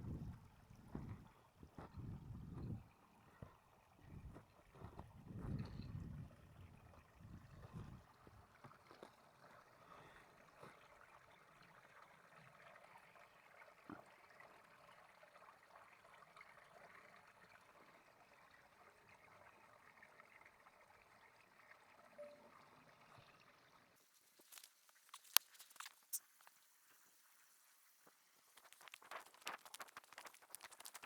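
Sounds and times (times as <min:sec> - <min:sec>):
soft low thumps: 0:00.2 - 0:01.2
faint outdoor hiss: 0:21.8 - 0:31.0.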